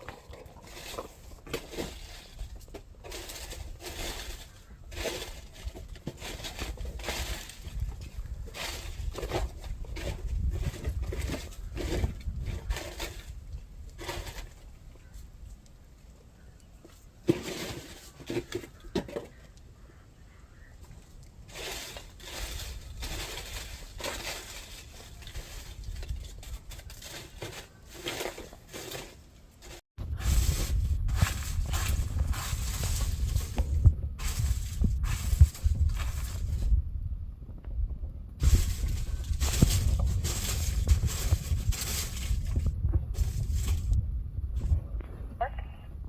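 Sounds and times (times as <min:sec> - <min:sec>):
dry leaves rustling and crackling: 0:00.6 - 0:14.7, 0:21.5 - 0:36.8, 0:38.4 - 0:44.0
steady low rumble: 0:30.0 - 0:46.0.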